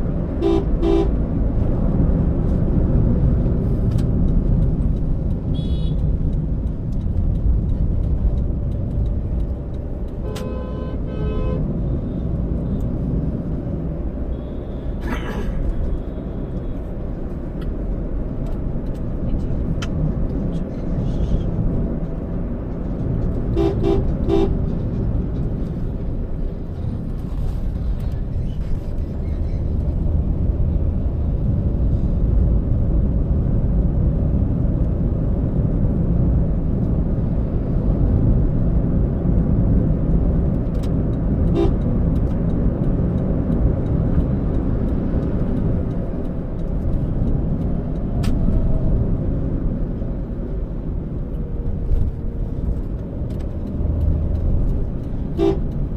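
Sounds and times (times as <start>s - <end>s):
car driving rumble: 0.0s - 55.9s
car horn toots: 0.4s - 1.1s, 10.2s - 11.7s, 23.5s - 24.6s, 41.5s - 41.8s, 55.3s - 55.8s.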